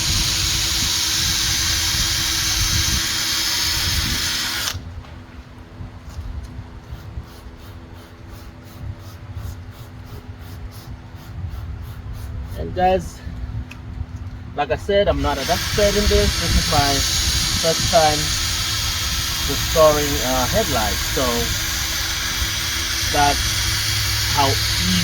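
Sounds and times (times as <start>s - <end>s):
power drill sanding whir: 0.0s - 4.8s, 14.9s - 25.0s.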